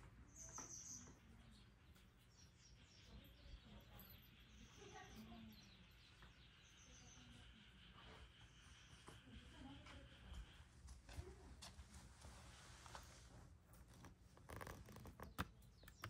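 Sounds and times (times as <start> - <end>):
distant birds trilling: 0.0 - 10.8.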